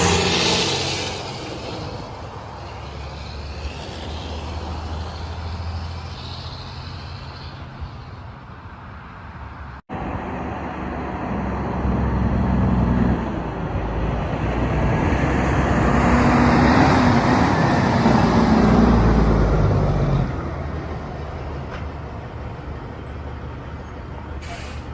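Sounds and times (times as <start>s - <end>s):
diesel truck engine droning: 9.9s - 24.9s.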